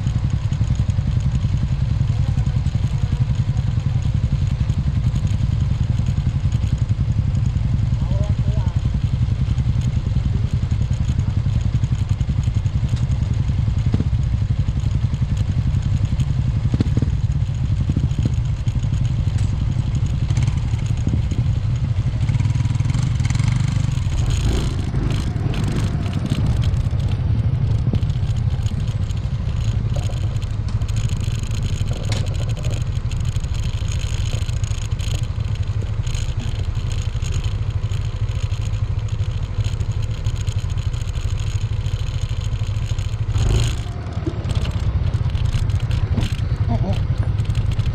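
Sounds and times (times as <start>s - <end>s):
scooter engine cruising: 0.0s - 47.9s
clicks and rattles: 11.0s - 47.9s.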